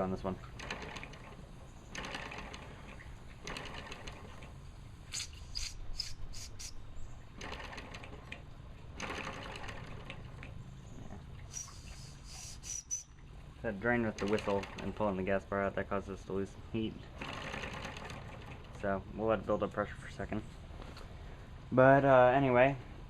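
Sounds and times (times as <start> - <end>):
steam model engine clatter: 0.6 - 2.8, 3.4 - 4.5, 14.1 - 15.0, 17.2 - 18.8
steam hiss bursts: 5.1 - 6.8, 11.5 - 12.8.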